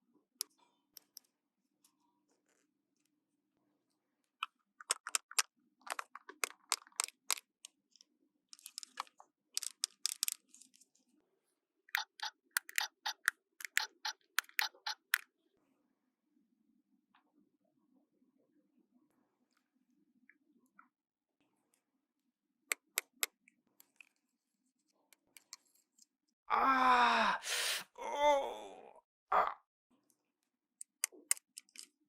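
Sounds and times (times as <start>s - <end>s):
plastic toy pieces clicking: 4.8s - 10.8s, 12.0s - 15.2s, 22.7s - 24.1s, 30.8s - 32.0s.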